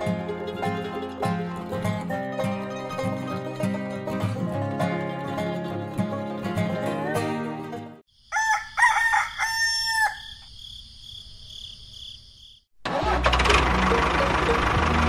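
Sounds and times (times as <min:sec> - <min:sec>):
background music: 0:00.0 - 0:08.0
rooster crowing: 0:08.2 - 0:10.4.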